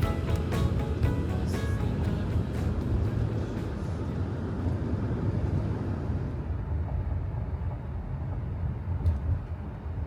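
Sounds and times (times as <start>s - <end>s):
steady low rumbling: 0.0s - 7.1s.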